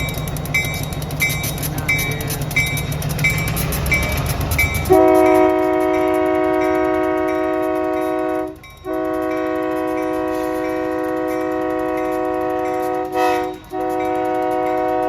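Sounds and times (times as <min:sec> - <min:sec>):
locomotive engine running: 0:00.0 - 0:15.0
regular ticking: 0:00.0 - 0:15.0
locomotive air horn blasts: 0:04.9 - 0:15.0.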